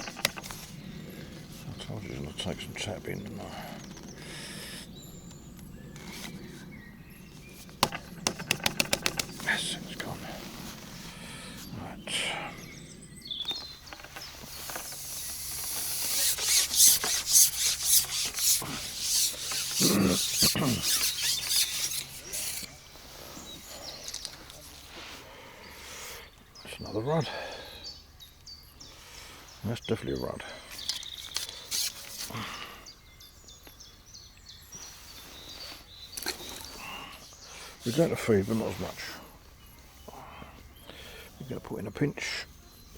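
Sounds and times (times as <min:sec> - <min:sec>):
birds chirping and trilling: 0:00.0 - 0:42.9
fishing pole rubbing hiss: 0:14.3 - 0:22.7, 0:31.0 - 0:32.4.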